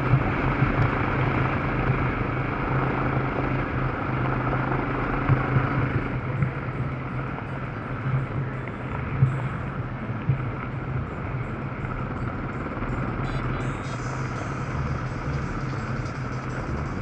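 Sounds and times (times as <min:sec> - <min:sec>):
motorcycle engine running: 0:14.0 - 0:17.0.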